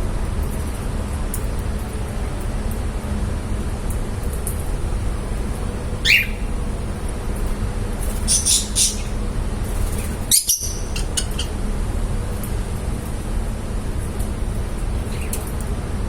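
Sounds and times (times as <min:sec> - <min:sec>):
low background rumble: 0:01.7 - 0:11.5
parrots chirping: 0:06.0 - 0:06.9, 0:08.1 - 0:11.5.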